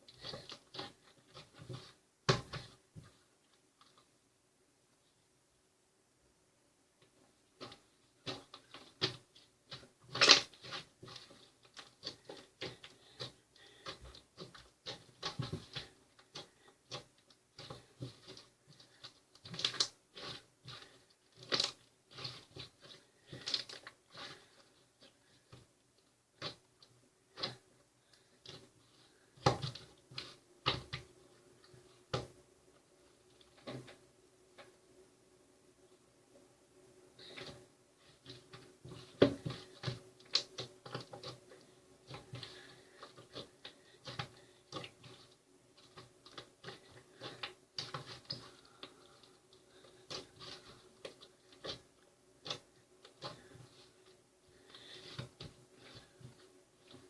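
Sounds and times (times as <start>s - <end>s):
irregular clicks and taps: 38.2s - 57.0s.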